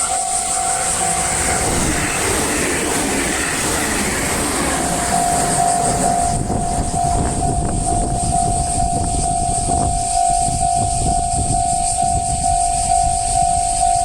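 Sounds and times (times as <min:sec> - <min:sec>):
level crossing warning bell: 0:00.0 - 0:14.0
train rumble and rail noise: 0:00.0 - 0:14.0.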